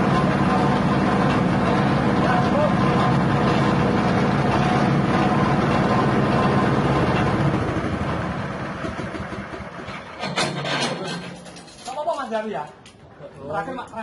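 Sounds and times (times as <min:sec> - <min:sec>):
petrol engine running: 0:00.0 - 0:10.2.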